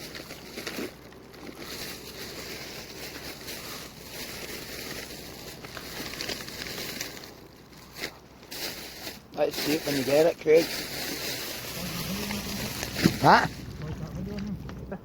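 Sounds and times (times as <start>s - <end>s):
faint crackles: 0.0s - 15.0s
water sounds: 11.4s - 15.0s.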